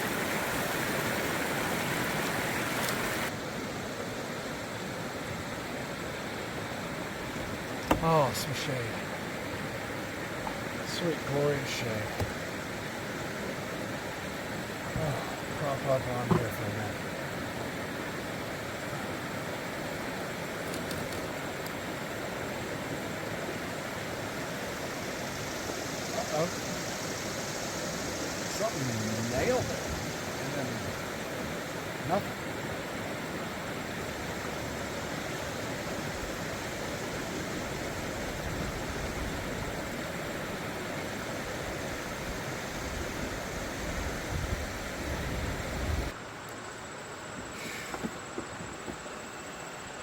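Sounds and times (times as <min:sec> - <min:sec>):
river water rushing: 0:00.0 - 0:46.3
faint light ticks: 0:02.8 - 0:03.0.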